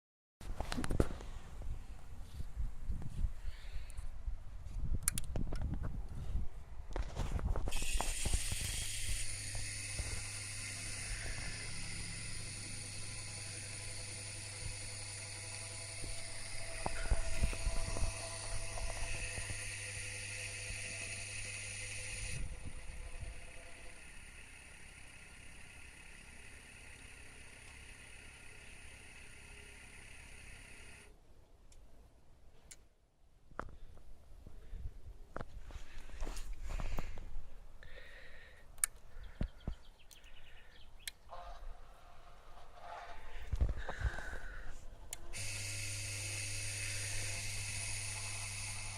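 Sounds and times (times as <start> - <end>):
hoist motor running: 7.7 - 31.1, 45.1 - 48.9.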